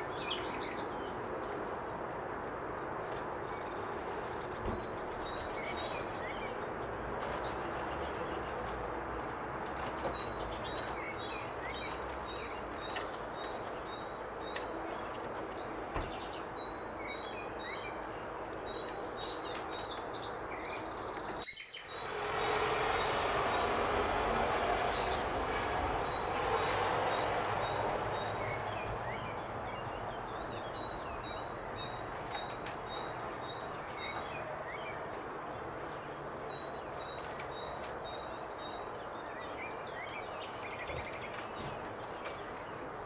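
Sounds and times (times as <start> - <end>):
steady background noise: 0.0 - 43.0.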